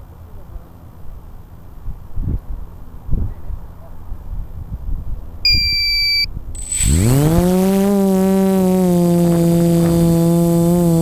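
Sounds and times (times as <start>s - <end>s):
short electronic beep: 5.5s - 6.8s
electric motors whining: 5.5s - 11.0s.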